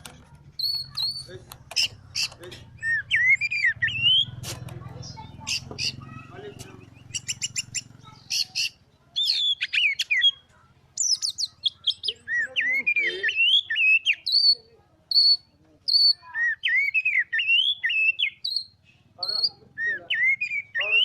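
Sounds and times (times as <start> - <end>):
bird singing whistled song: 0.6 - 4.3, 6.8 - 10.4, 11.0 - 21.0.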